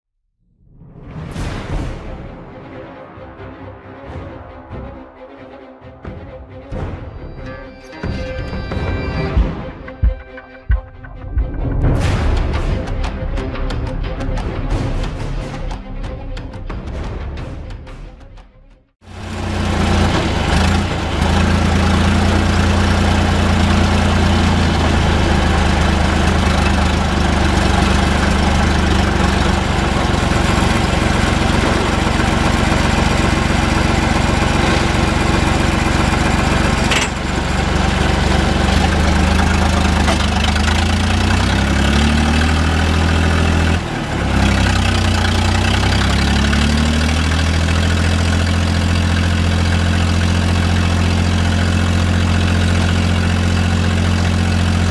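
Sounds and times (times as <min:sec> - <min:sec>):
diesel tractor engine running: 0:19.0 - 0:54.9.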